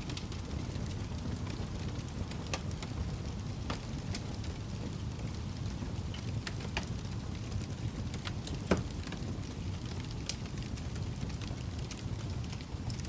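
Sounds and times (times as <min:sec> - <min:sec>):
fire crackles and pops: 0:00.0 - 0:13.0
low rumble of flames: 0:00.0 - 0:13.0.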